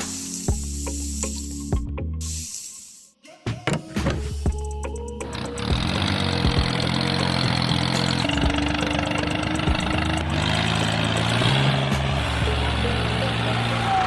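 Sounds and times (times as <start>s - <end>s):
vehicle engine idling: 4.4s - 14.0s.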